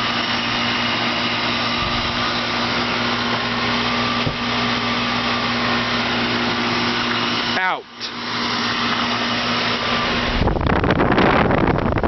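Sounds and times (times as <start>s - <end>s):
condenser fan noise: 0.0s - 12.0s
low compressor hum: 0.0s - 12.0s
light thump: 4.2s - 4.5s.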